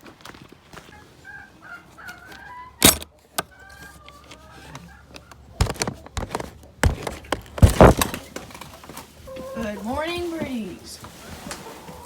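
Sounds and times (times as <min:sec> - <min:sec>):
chickens clucking softly: 0:00.9 - 0:05.6, 0:08.6 - 0:10.0, 0:11.0 - 0:12.0
sharp loud knocks and clatters: 0:05.6 - 0:08.6.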